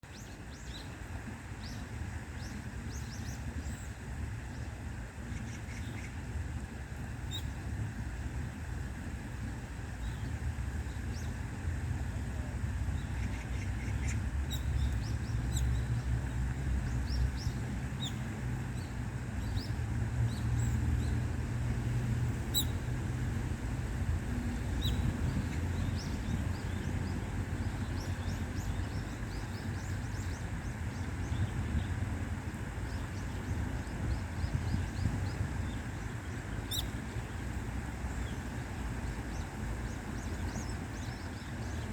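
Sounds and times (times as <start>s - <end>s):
small birds chirping: 12.4s - 21.2s, 21.9s - 22.9s, 24.4s - 41.9s.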